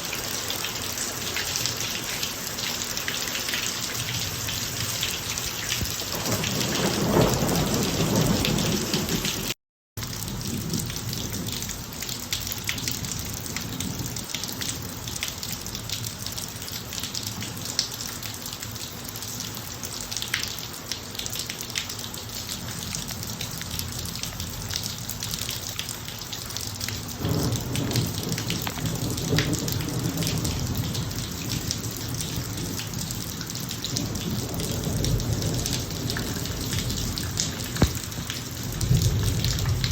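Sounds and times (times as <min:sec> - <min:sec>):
rain falling: 0:00.0 - 0:39.9
raindrops pattering: 0:00.0 - 0:39.9
thunder rumbling: 0:05.8 - 0:09.6, 0:27.2 - 0:31.7, 0:33.9 - 0:39.9.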